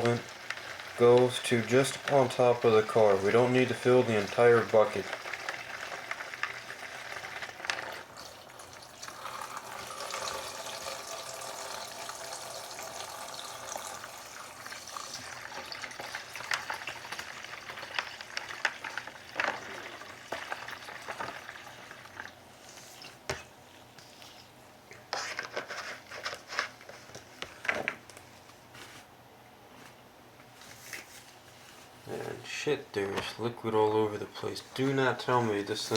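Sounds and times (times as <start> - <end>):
liquid pouring into a bucket: 0.0 - 23.2.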